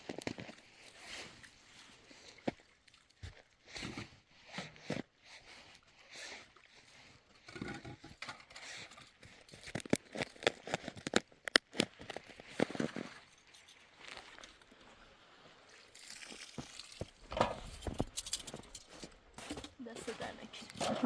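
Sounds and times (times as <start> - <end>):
crinkling handling noises: 0.0 - 2.7, 7.4 - 21.0.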